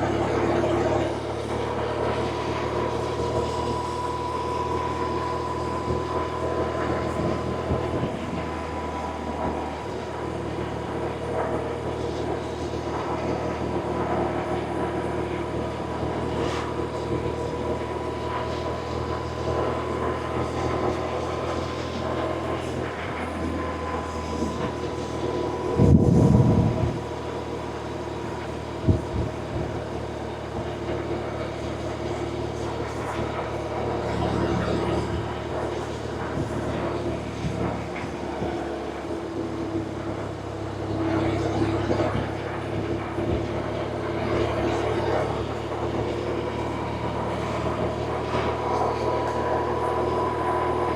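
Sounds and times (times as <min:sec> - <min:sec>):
loud low rumble: 0:23.0 - 0:27.1.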